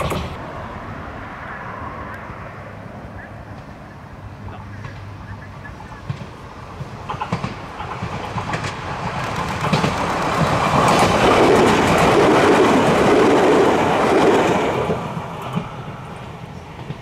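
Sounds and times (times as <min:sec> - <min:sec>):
train wheels clacking over joints: 0:00.0 - 0:00.4, 0:06.0 - 0:17.0.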